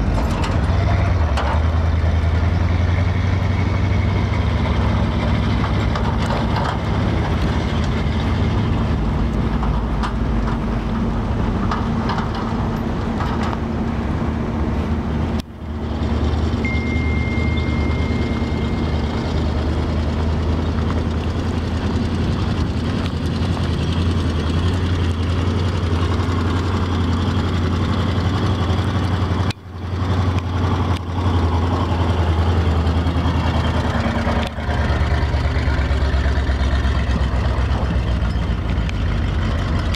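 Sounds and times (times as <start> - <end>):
truck engine running: 0.0 - 39.9
thin high whine: 16.6 - 19.5.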